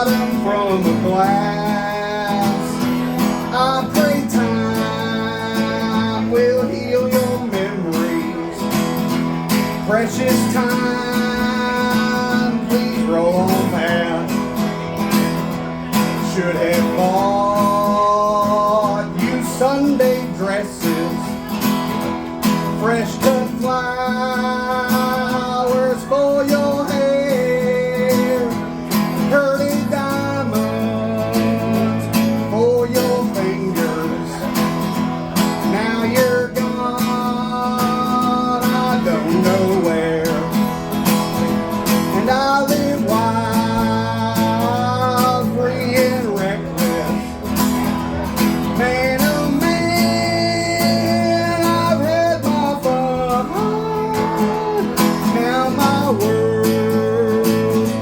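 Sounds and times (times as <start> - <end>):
strummed acoustic guitar: 0.0 - 58.0.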